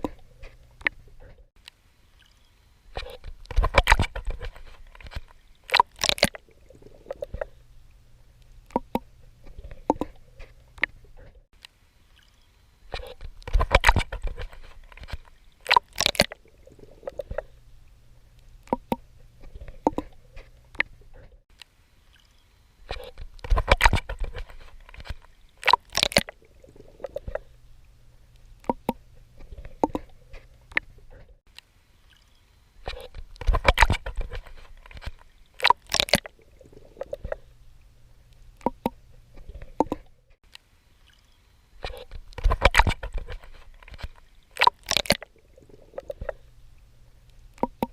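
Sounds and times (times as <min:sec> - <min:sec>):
water sloshing and gurgling: 0:00.0 - 0:47.9
swimming strokes splashing: 0:22.1 - 0:27.6, 0:32.1 - 0:37.5.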